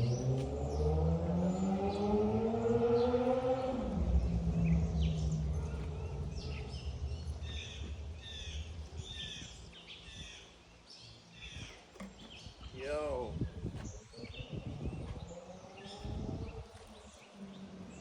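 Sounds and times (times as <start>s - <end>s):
passing vehicle engine hum: 0.0s - 10.0s, 14.0s - 18.0s
bird chirping: 0.0s - 18.0s.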